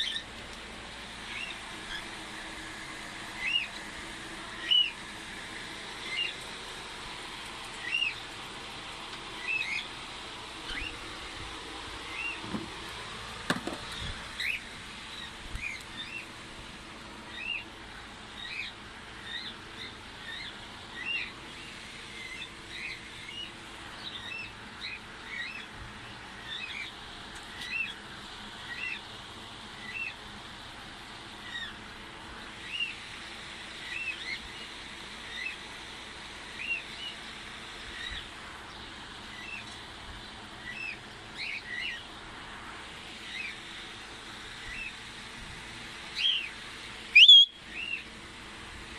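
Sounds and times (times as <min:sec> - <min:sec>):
steady background noise: 0:00.0 - 0:48.9
cockatiel chirping: 0:10.7 - 0:11.0, 0:47.1 - 0:48.0.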